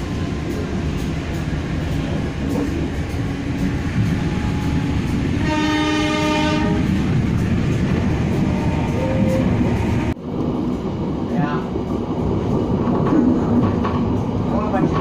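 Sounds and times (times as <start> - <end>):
train rumbling: 0.0 - 15.0
locomotive horn: 4.1 - 7.0, 8.4 - 9.6.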